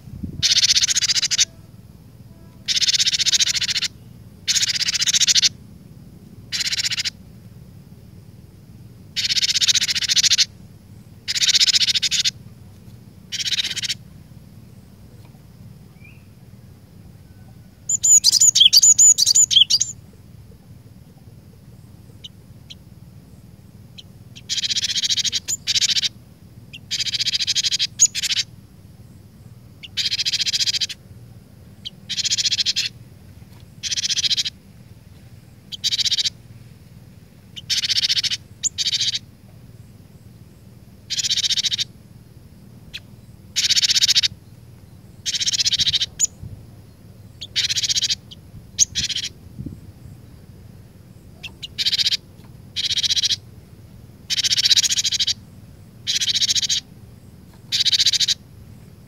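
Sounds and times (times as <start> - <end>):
faint low hum: 0.0 - 59.0
bird singing rapid notes: 0.4 - 1.7, 2.6 - 5.6, 6.5 - 7.2, 9.1 - 12.4, 13.2 - 15.1, 15.8 - 16.4, 17.7 - 33.0, 33.7 - 34.7, 35.5 - 36.4, 37.6 - 42.0, 42.8 - 49.4, 51.1 - 53.6, 54.2 - 58.9.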